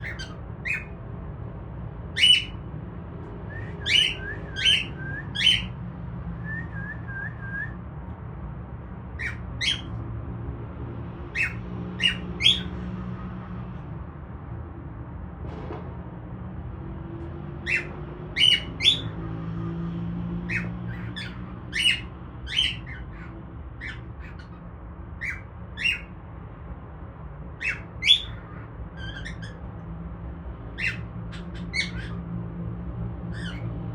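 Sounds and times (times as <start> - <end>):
cockatiel squawking: 0.0 - 1.0, 2.2 - 2.6, 3.6 - 5.8, 9.2 - 10.0, 11.3 - 12.7, 17.6 - 19.1, 20.5 - 26.1, 27.6 - 29.6, 30.7 - 32.3, 33.3 - 33.7.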